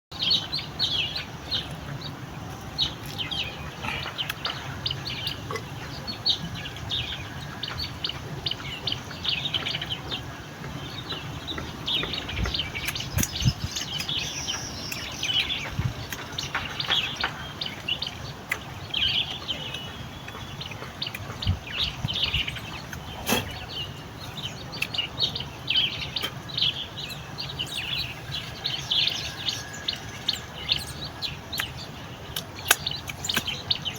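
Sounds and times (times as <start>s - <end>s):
small birds chirping: 0.2s - 33.9s.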